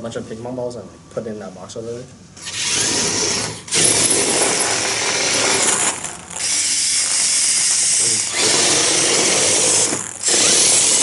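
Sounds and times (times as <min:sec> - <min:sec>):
robot electric motors and gears: 0:02.4 - 0:11.0.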